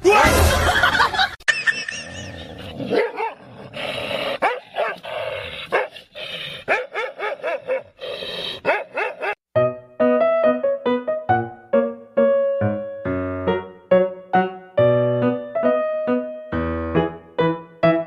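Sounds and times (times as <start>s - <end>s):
dog barking: 2.9s - 3.4s, 4.4s - 5.0s, 5.7s - 6.0s, 6.7s - 8.0s, 8.6s - 9.4s.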